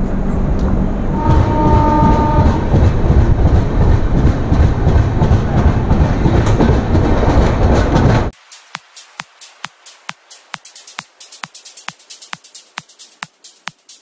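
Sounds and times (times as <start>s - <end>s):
train rumbling: 0.0s - 8.4s
wheels clattering over rail joints: 0.5s - 8.3s.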